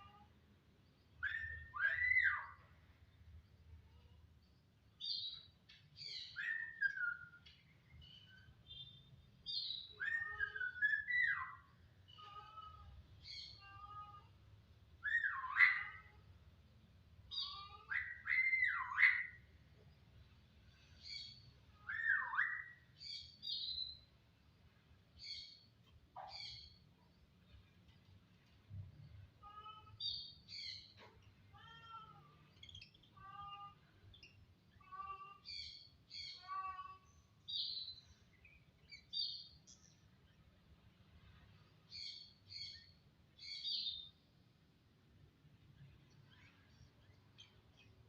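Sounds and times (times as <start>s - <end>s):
starling whistling and calling: 1.2s - 2.6s, 15.0s - 16.0s, 17.4s - 19.4s, 21.9s - 22.7s.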